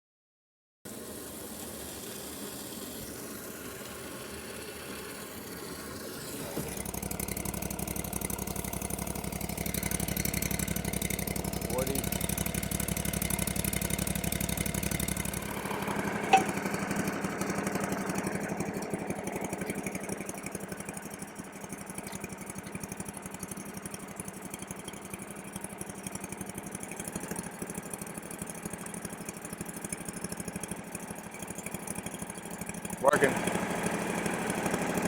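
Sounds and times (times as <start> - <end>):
small engine idling: 0.9 - 35.0.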